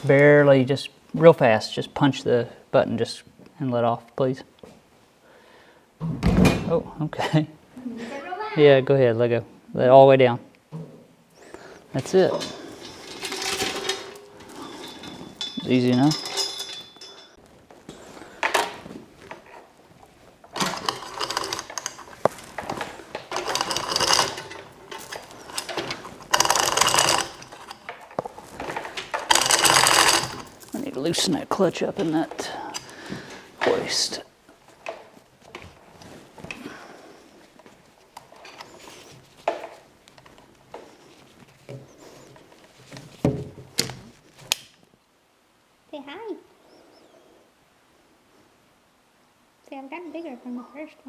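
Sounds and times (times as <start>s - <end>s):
scraping and rustling: 11.6s - 44.5s.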